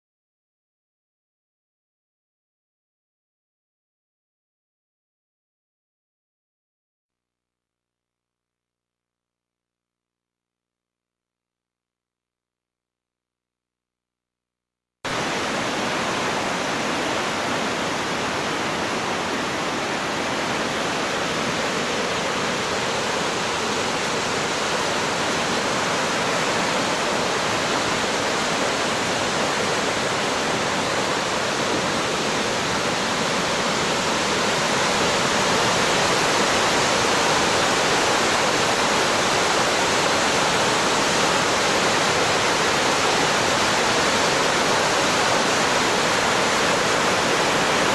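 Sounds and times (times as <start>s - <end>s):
floodwater rushing: 15.1s - 47.9s.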